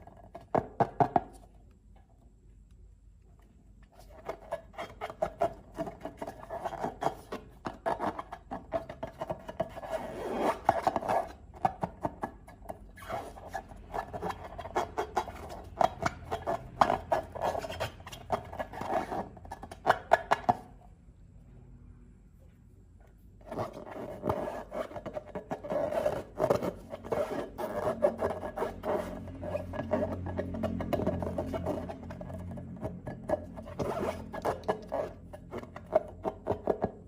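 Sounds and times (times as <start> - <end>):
rubber rubbing and squeaking: 0.0 - 1.4, 3.9 - 20.8, 23.4 - 37.0.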